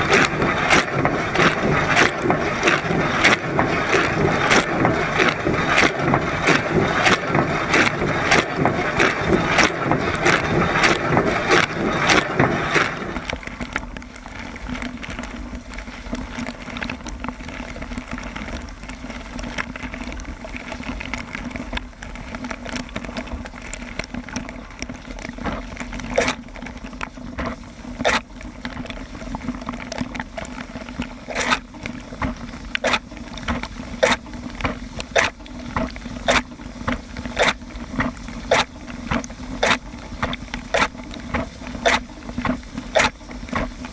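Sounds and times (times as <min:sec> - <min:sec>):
water spraying in dishwasher: 0:00.0 - 0:13.4, 0:32.2 - 0:43.9
pump hum: 0:00.0 - 0:43.9.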